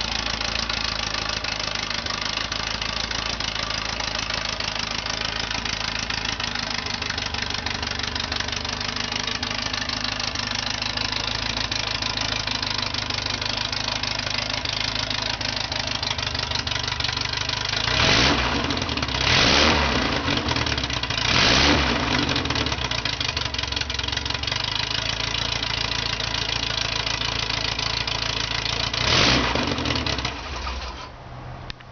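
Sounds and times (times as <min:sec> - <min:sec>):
car engine idling: 0:00.0 - 0:31.9
engine revving: 0:17.7 - 0:23.1, 0:28.8 - 0:31.1.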